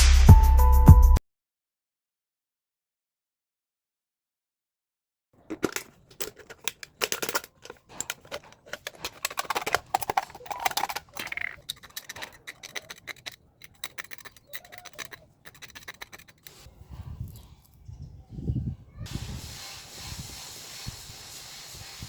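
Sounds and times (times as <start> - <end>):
clicks and scrapes on aluminium cans: 5.4 - 16.7.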